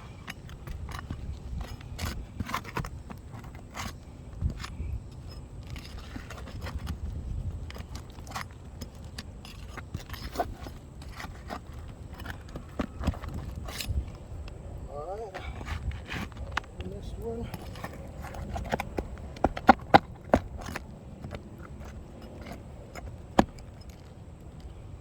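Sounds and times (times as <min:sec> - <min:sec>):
metal tool clinking and scraping: 0:00.0 - 0:14.3, 0:15.3 - 0:19.1.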